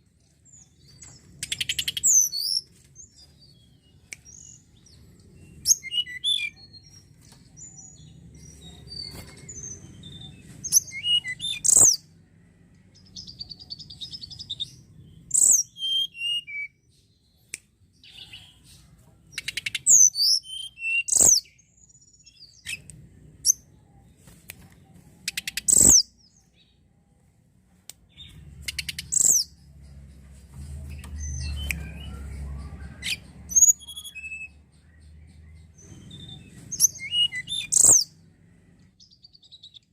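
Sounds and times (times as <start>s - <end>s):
bird chirping: 0.0s - 39.9s
buzzy bird trill: 25.3s - 26.1s, 28.2s - 29.7s.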